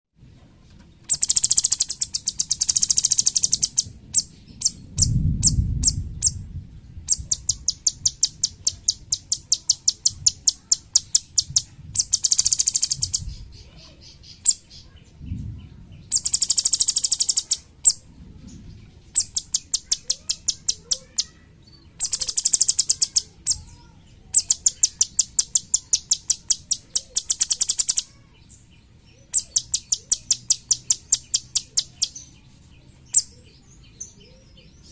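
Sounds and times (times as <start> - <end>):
bird singing rapid trills: 1.1 - 6.5, 7.1 - 15.4, 16.0 - 18.0, 18.6 - 34.9
low rumble: 3.8 - 7.8, 15.0 - 16.2.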